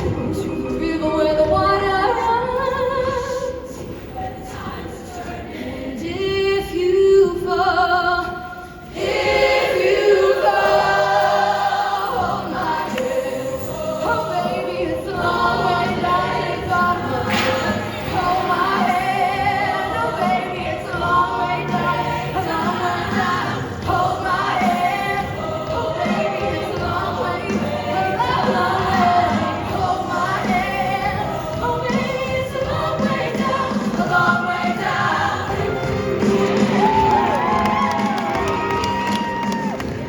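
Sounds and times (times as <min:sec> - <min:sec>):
choir singing in harmony: 0:00.0 - 0:40.0
live band playing: 0:35.5 - 0:40.0.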